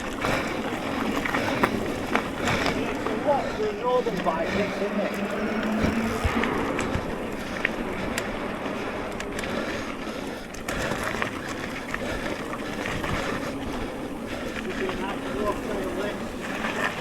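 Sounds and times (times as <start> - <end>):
bike rattling clicks and knocks: 0.0 - 17.0
tyre and trail noise: 0.0 - 17.0.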